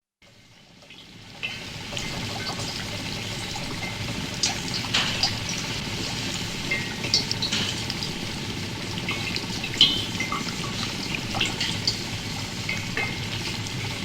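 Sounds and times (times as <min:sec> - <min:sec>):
water drips and splashes: 0:00.3 - 0:14.0
water trickling: 0:06.4 - 0:14.0.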